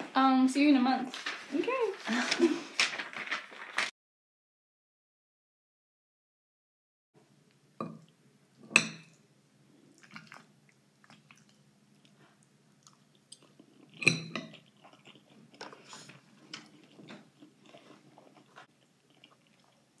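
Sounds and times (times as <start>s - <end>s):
person chewing food: 9.1s - 20.0s.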